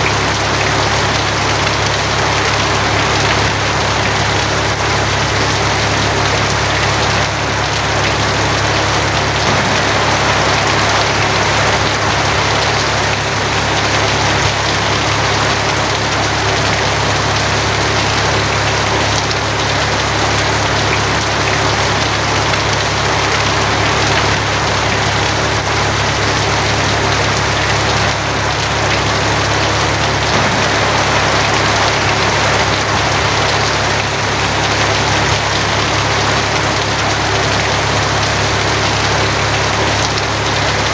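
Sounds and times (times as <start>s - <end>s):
heavy rain on a tin roof: 0.0s - 40.9s
low rumble: 9.4s - 13.6s, 30.3s - 34.9s.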